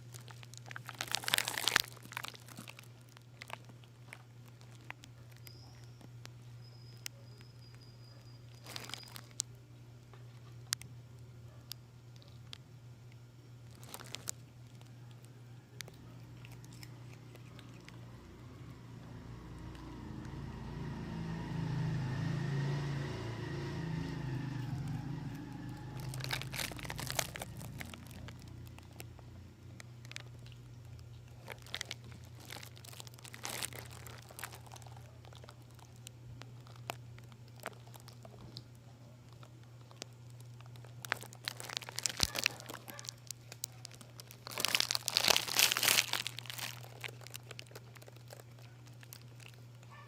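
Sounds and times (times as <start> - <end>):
kitten chewing vegetable peels: 0.0 - 50.0
steady low hum: 0.0 - 50.0.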